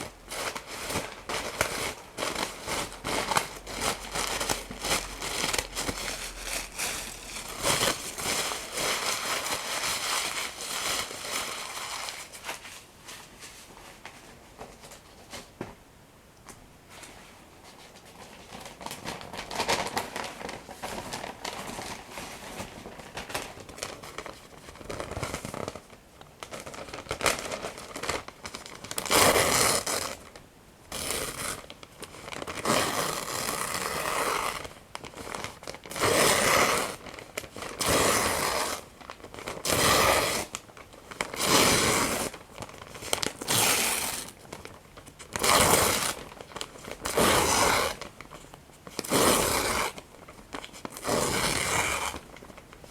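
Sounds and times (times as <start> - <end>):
paper crinkling: 17.0 - 29.1, 42.2 - 52.9
paper tearing: 35.8 - 37.0, 37.8 - 38.9, 39.6 - 40.6, 41.2 - 42.4, 43.0 - 44.4, 45.3 - 46.4, 47.0 - 48.1, 49.0 - 50.0, 50.8 - 52.4.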